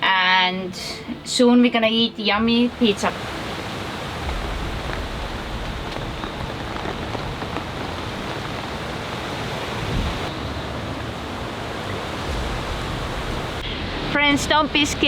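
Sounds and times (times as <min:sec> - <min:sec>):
wind: 0:00.0 - 0:15.0
rain: 0:02.1 - 0:15.0
wind buffeting the microphone: 0:02.7 - 0:13.7.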